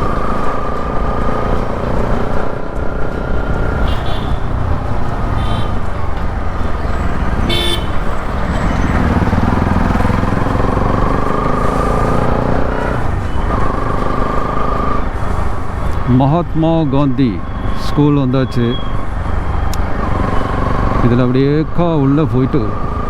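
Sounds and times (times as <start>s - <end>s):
motorcycle engine running: 0.0s - 15.9s
road noise: 0.0s - 23.0s
vehicle horn toot: 3.8s - 4.6s, 5.3s - 6.1s, 6.8s - 9.6s.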